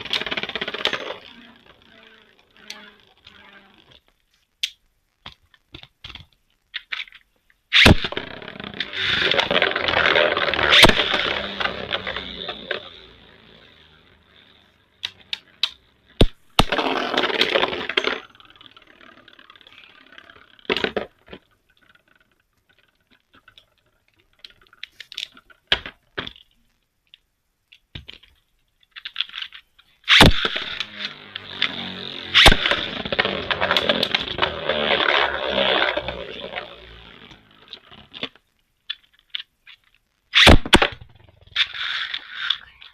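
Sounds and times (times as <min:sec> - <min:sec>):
spinning tops clashing: 0:00.0 - 0:02.1, 0:30.1 - 0:38.0.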